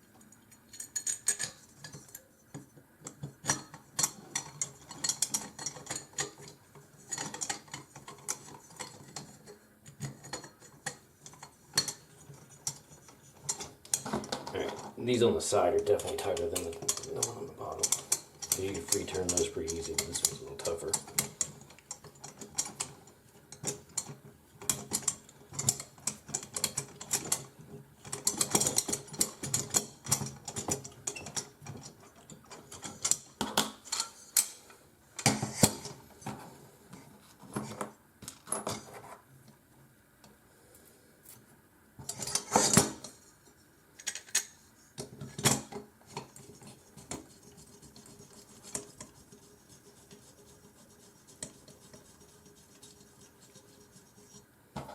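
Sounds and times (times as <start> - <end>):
metal parts clinking and rattling: 0.5 - 2.2, 3.2 - 14.9, 15.9 - 34.6, 42.0 - 43.2
clatter of hardware: 42.0 - 43.2.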